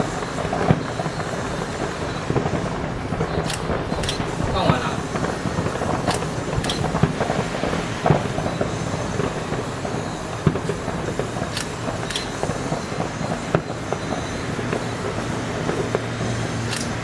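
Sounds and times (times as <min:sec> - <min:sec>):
rumble of bursting fireworks: 0:00.0 - 0:17.0
sharp firework bangs: 0:00.0 - 0:17.0.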